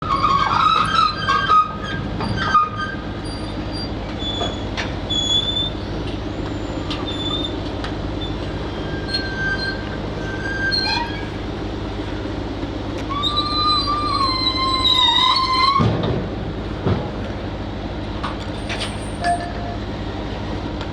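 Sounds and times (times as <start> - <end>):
high metallic squealing: 0.0 - 7.6, 8.2 - 11.4, 13.1 - 15.8
short squeaks and knocks: 0.0 - 11.3, 13.0 - 16.0
heavy diesel machinery running: 0.0 - 20.9.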